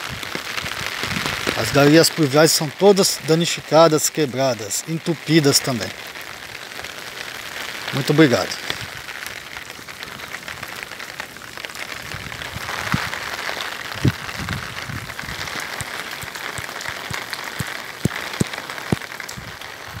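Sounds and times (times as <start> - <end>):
light rain on standing water: 0.0 - 20.0
drip ticks: 15.7 - 19.1.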